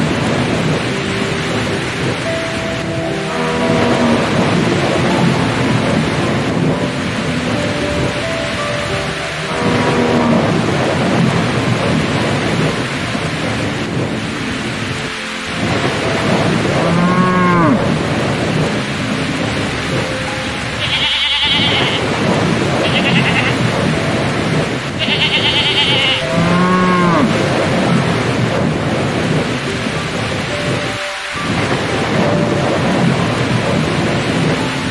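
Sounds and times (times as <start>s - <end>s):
heavy rain: 0.0s - 34.9s
high chirring bursts: 19.0s - 27.6s
farm animals calling: 20.8s - 22.1s, 22.8s - 23.7s, 25.0s - 27.3s.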